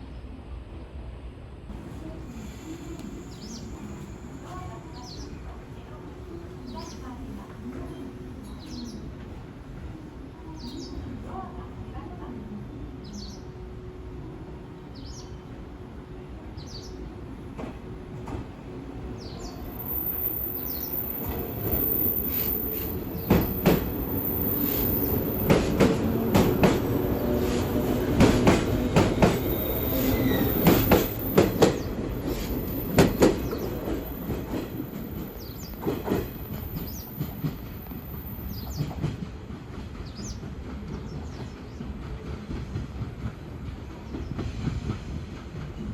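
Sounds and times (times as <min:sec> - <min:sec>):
train wheels clacking over rails: 0:19.7 - 0:45.9.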